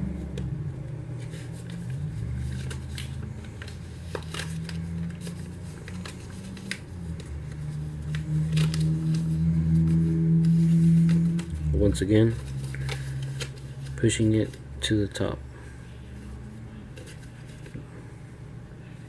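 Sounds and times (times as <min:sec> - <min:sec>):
low hum: 0:00.0 - 0:19.0
paper crinkling: 0:01.2 - 0:14.6.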